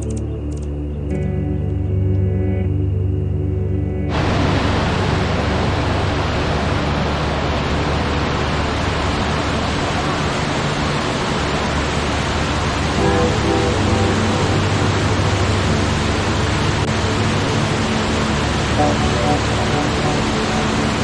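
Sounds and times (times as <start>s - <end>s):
faint low steady tones: 0.0s - 21.0s
waterfall rushing: 4.1s - 21.0s.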